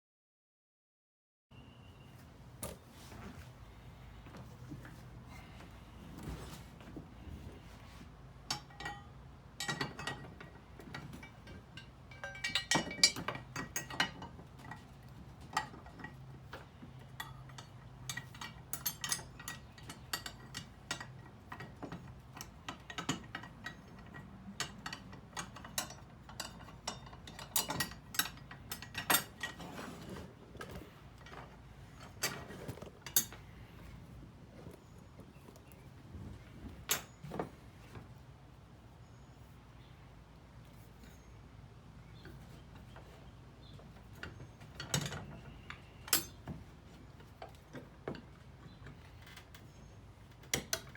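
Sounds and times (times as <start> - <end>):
metal tools clicking and clinking: 8.5 - 16.3, 17.0 - 33.6, 44.1 - 46.6.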